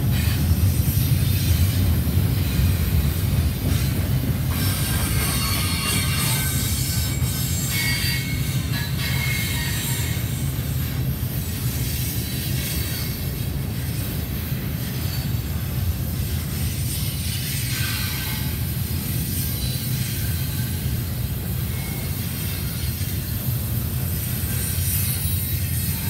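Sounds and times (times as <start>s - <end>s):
freight train wheels rumbling: 0.0s - 26.0s
high-pitched wheel squeals: 4.5s - 10.3s.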